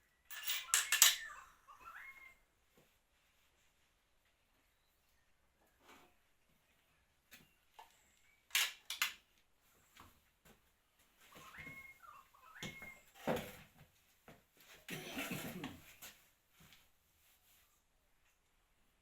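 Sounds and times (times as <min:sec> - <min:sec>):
metal tools clinking: 0:00.3 - 0:01.3.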